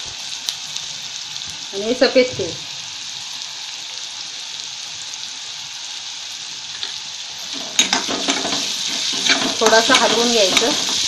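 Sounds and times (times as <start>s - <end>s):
onions sizzling in oil: 0.0s - 11.0s
spatula scraping a pan: 7.5s - 11.0s.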